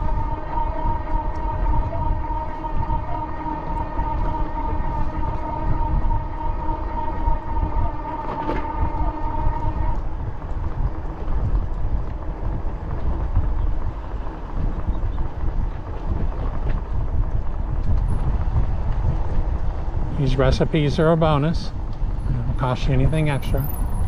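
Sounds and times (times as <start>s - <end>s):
held horn chord: 0.0s - 11.3s
wind buffeting microphone: 0.0s - 24.0s.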